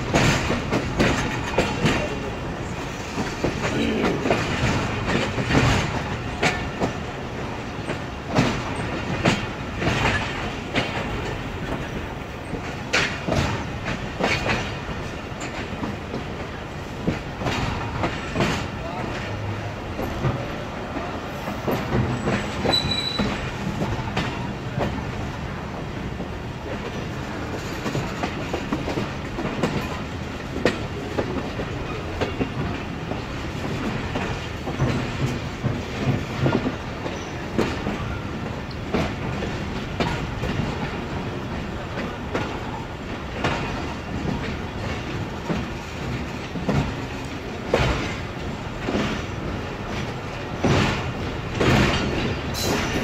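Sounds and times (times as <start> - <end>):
train rumble: 0.0 - 53.0
high wheel squeal: 22.2 - 23.4.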